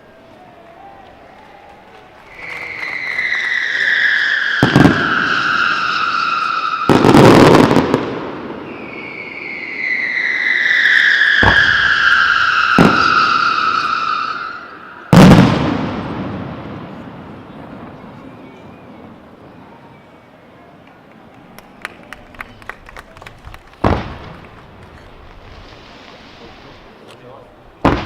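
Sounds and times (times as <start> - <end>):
firework crackling: 0.7 - 18.4, 21.0 - 28.0
firework bangs: 2.2 - 19.4, 22.8 - 27.0, 27.8 - 28.0
firework whistles falling in pitch: 2.3 - 7.8, 8.5 - 15.8.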